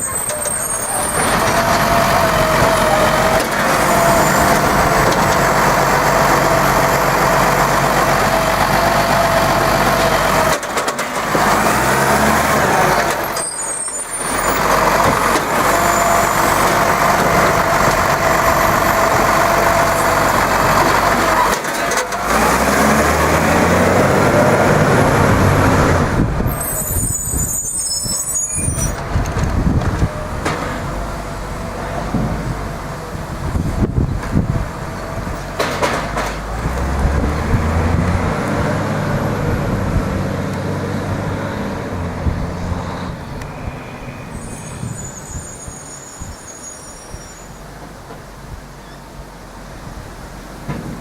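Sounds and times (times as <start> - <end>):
diesel truck engine revving: 0.0 - 46.2.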